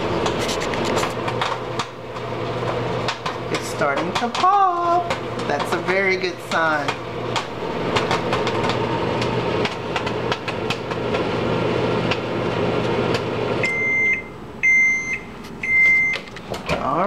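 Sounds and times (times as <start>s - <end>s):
microwave oven humming: 0.0s - 17.0s
popcorn popping in paper bag: 0.2s - 11.3s
microwave beeps: 13.6s - 16.4s.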